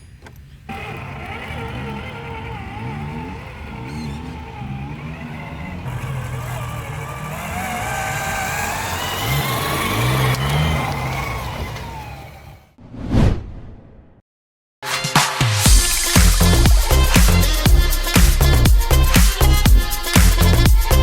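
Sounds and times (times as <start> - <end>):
model car engine revving: 0.6 - 12.8, 15.7 - 21.0
whoosh: 12.8 - 14.2.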